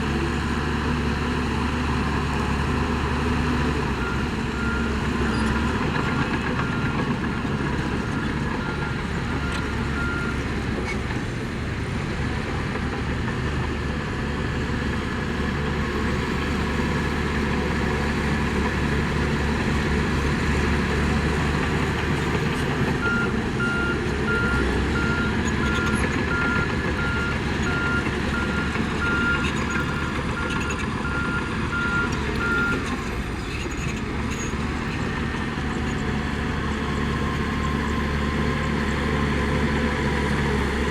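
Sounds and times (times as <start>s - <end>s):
diesel machinery running: 0.0s - 40.9s
reversing alarm beeping: 23.0s - 32.8s.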